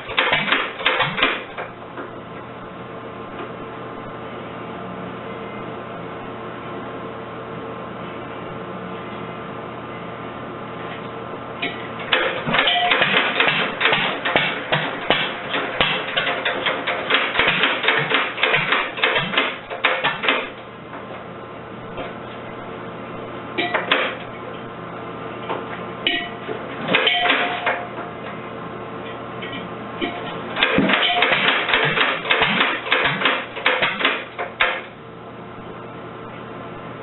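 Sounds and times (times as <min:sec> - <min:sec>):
stationary engine knocking: 0:12.1 - 0:20.5, 0:30.6 - 0:34.8.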